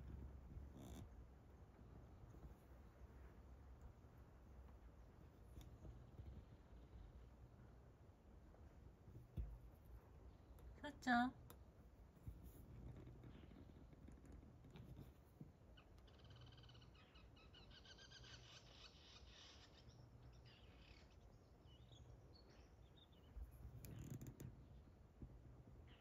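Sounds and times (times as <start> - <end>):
faint bird twittering: 15.7 - 24.8.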